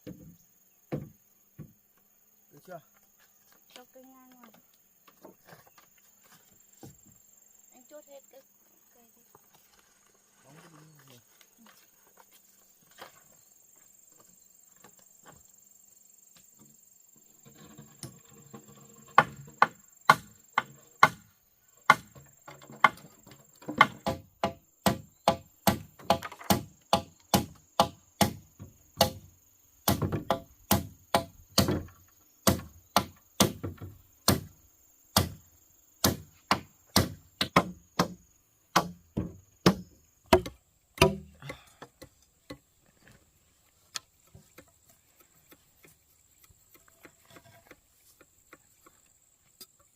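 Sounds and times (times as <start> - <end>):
hammer striking wooden timbers: 19.1 - 21.3, 21.9 - 35.4, 36.0 - 42.6.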